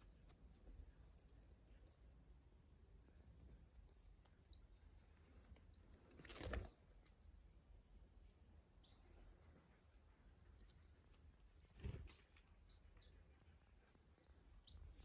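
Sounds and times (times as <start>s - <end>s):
quail chicks peeping: 3.2s - 15.0s.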